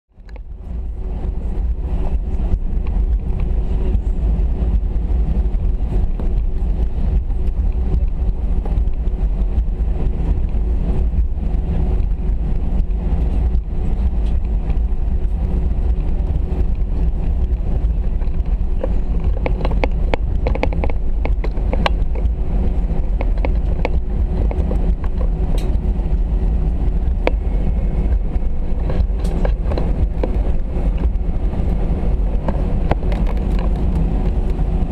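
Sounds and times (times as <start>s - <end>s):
airliner cabin rumble: 0.1s - 34.9s
small clicks and knocks: 18.2s - 22.3s.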